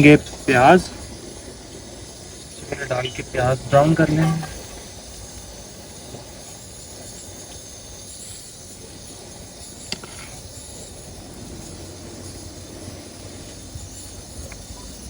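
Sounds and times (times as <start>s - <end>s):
onions sizzling in hot oil: 4.9s - 15.0s.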